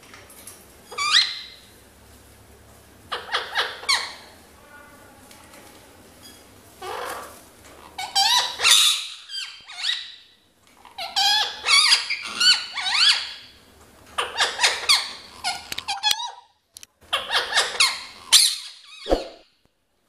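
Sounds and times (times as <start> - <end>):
parrot screeching: 0.9 - 1.6, 6.8 - 10.2, 10.9 - 13.4.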